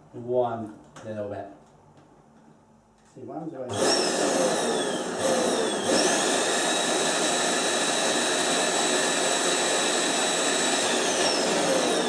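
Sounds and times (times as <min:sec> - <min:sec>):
vacuum cleaner whine: 0:03.7 - 0:12.0.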